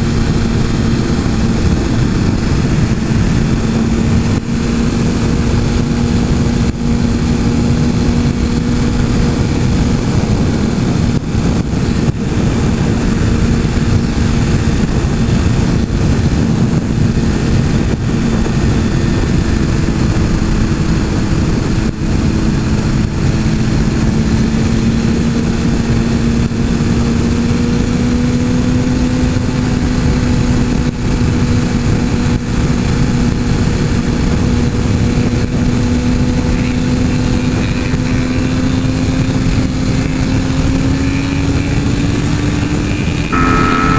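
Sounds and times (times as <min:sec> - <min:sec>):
motorcycle engine cruising: 0:00.0 - 0:43.9
wind noise: 0:00.0 - 0:43.9.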